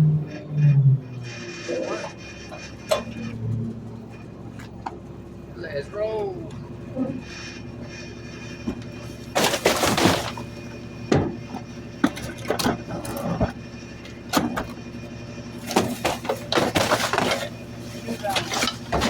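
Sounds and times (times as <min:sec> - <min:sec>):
garbage truck running: 0:00.0 - 0:19.0
sharp knocks and thunks: 0:11.1 - 0:12.8.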